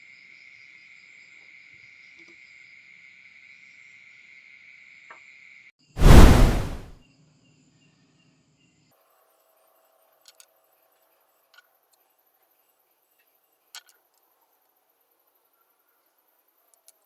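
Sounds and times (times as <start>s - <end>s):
loud burst of rushing noise: 6.0s - 6.9s.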